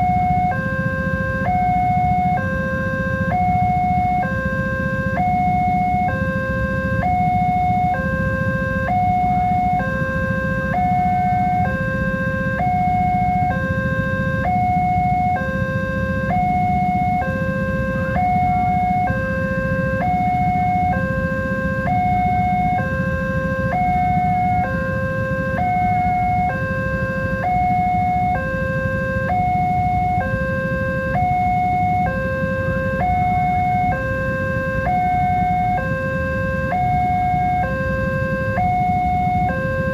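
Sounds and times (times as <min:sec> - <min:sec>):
level crossing two-tone alarm: 0:00.0 - 0:39.9.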